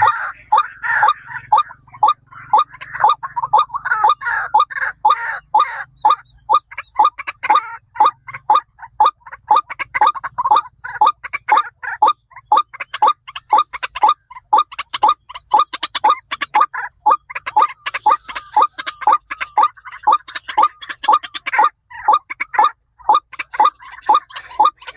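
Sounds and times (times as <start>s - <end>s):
bird calling rapid sharp notes: 0.0s - 24.9s.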